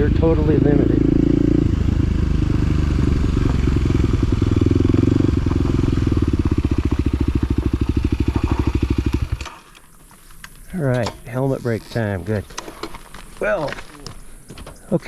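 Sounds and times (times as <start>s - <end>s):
utility vehicle engine idling: 0.0s - 10.8s.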